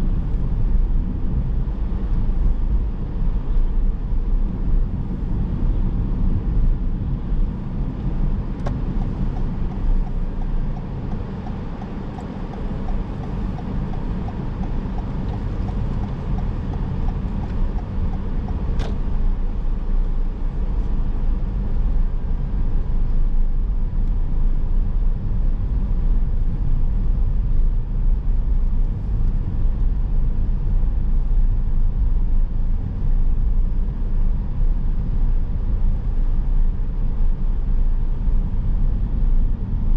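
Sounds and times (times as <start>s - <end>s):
car engine and tyres rumbling: 0.0s - 39.9s
faint regular ticking: 8.9s - 18.7s.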